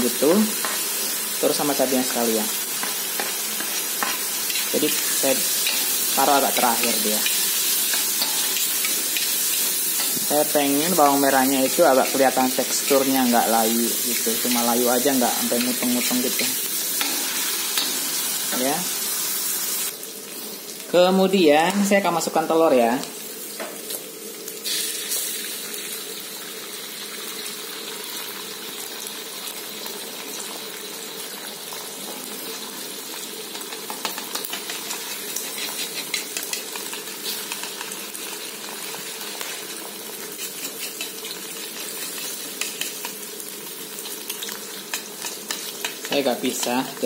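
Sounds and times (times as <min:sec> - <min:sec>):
food sizzling in oil: 0:00.0 - 0:47.0
metal spatula scraping a wok: 0:02.8 - 0:10.3, 0:34.4 - 0:37.6, 0:40.2 - 0:43.2.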